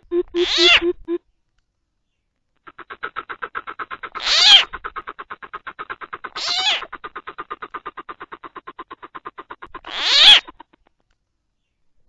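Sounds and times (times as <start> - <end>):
coucal calling fast short notes: 0.0 - 1.2.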